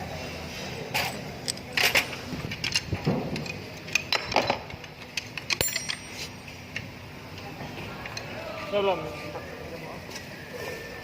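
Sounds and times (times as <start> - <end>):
low workshop hum: 0.0 - 11.0
metal parts clinking: 0.9 - 6.8.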